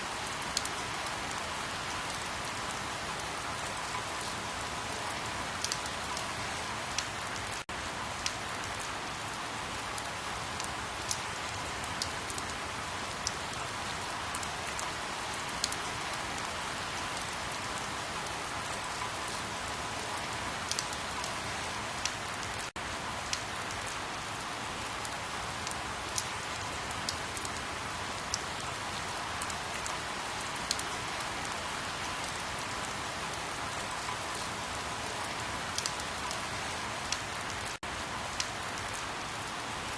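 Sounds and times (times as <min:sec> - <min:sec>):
steady rain hiss: 0:00.0 - 0:39.9
rain drop ticks: 0:05.6 - 0:06.3, 0:06.9 - 0:07.6, 0:08.2 - 0:08.9, 0:10.0 - 0:12.5, 0:20.0 - 0:21.4, 0:33.9 - 0:36.4.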